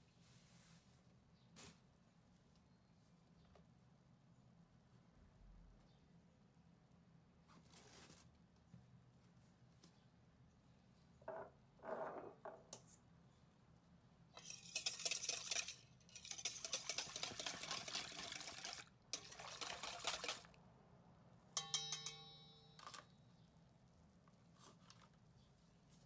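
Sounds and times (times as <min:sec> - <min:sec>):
utensil clinking against dish: 0:14.4 - 0:20.5, 0:21.6 - 0:23.1
utensil scraping in a bowl: 0:14.4 - 0:20.6.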